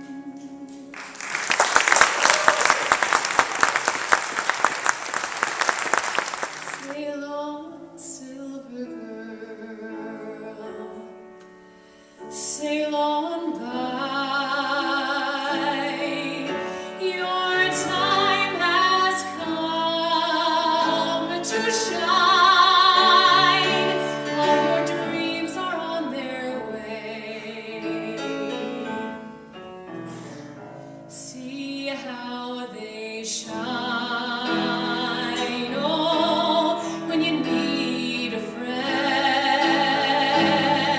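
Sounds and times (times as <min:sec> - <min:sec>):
piano accompaniment: 0:00.0 - 0:08.0, 0:08.6 - 0:40.9
woman singing operatically: 0:06.8 - 0:11.1, 0:12.4 - 0:29.0, 0:31.1 - 0:40.9.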